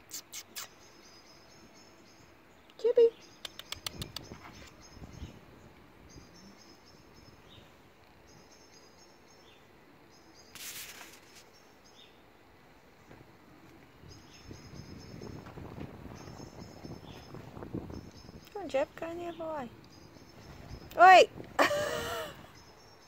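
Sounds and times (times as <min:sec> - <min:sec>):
small bird chirping: 0:00.0 - 0:12.2, 0:14.0 - 0:21.2
brief rustle: 0:10.5 - 0:11.5.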